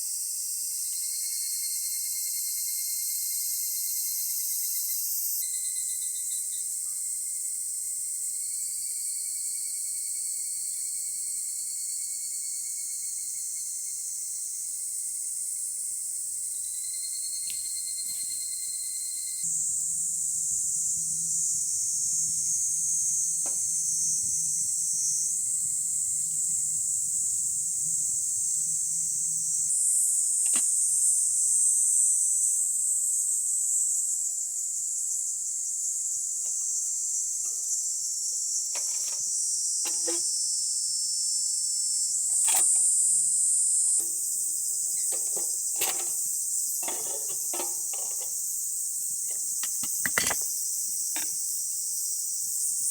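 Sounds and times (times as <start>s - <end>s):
high-pitched insect chorus: 0.0s - 52.9s
thin steady insect tone: 0.0s - 52.9s.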